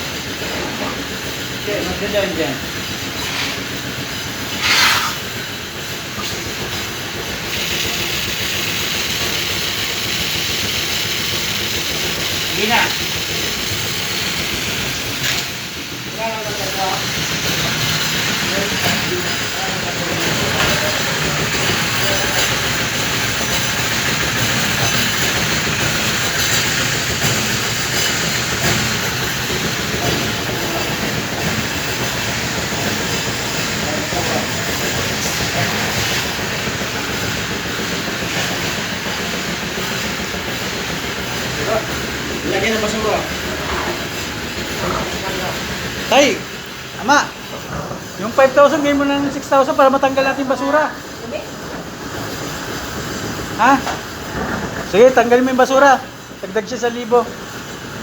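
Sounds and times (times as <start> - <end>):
suction hose hissing: 0.0 - 58.0
vacuum pump running: 0.0 - 58.0
vacuum truck suction hiss: 2.9 - 9.2.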